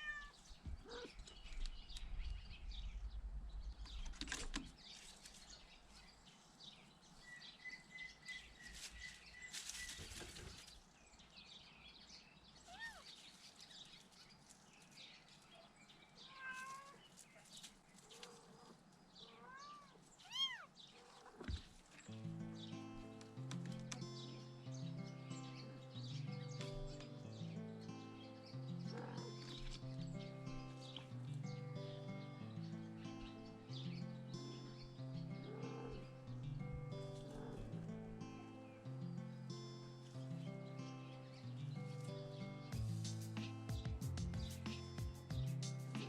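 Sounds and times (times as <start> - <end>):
soft rustling and handling noise: 4.1 - 6.1, 8.5 - 11.0, 12.6 - 19.1.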